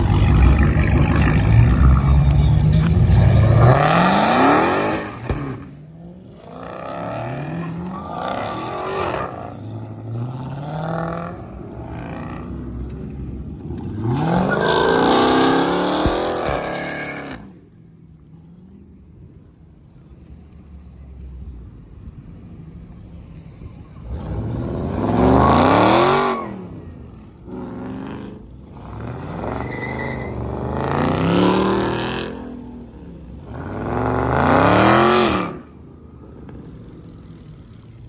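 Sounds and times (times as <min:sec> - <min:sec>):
car engine revving hard: 0:03.2 - 0:05.6, 0:33.5 - 0:35.7.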